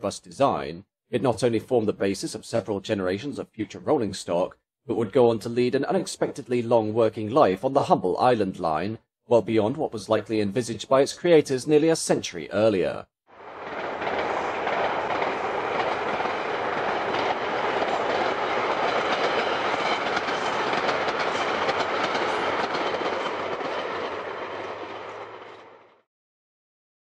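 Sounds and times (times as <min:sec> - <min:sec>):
train wheels clicking over rail joints: 0:13.5 - 0:25.8.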